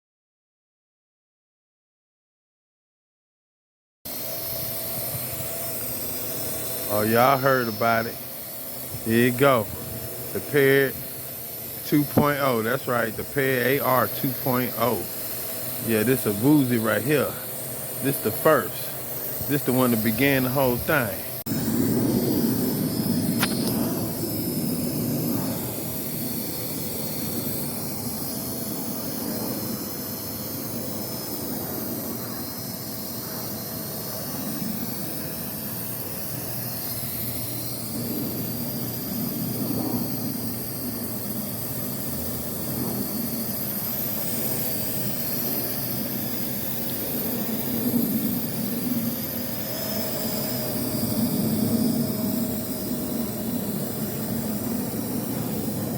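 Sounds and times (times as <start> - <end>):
drone propellers whirring: 4.1 - 55.9.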